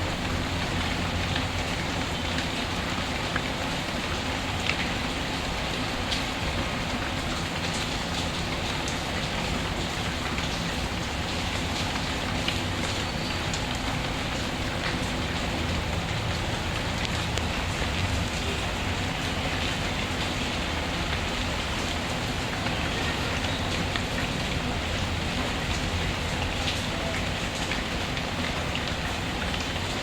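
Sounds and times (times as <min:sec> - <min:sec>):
steady rainfall: 0:00.0 - 0:30.0.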